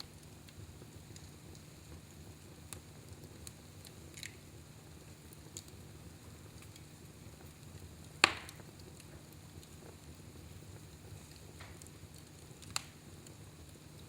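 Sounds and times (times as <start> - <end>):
fireplace fire crackling: 0.0 - 14.0
sharp loud fire pop: 8.2 - 8.6.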